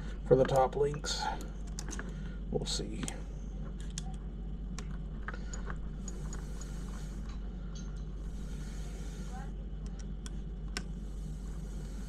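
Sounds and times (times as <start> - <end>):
low electrical hum: 0.0 - 12.0
small parts and tools clicking: 0.4 - 2.2, 4.8 - 9.0
soft hissing: 6.0 - 7.4, 8.2 - 9.6, 10.9 - 12.0.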